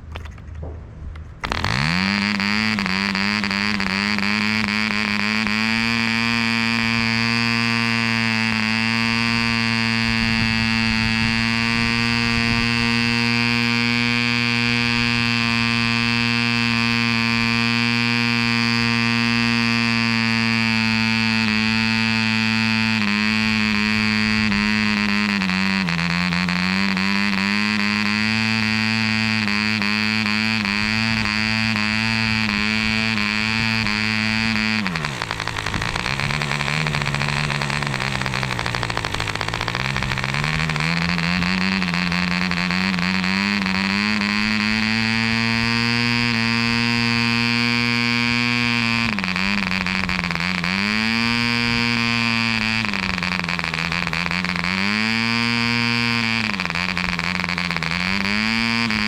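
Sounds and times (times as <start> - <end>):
model engine buzzing: 1.2 - 59.0.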